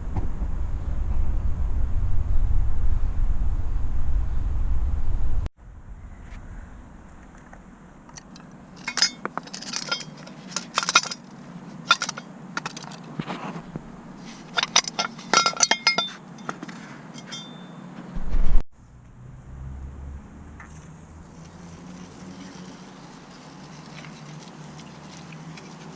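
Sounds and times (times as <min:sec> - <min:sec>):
metal parts clinking: 0:08.1 - 0:13.2, 0:14.2 - 0:17.8
low thump: 0:18.2 - 0:18.6.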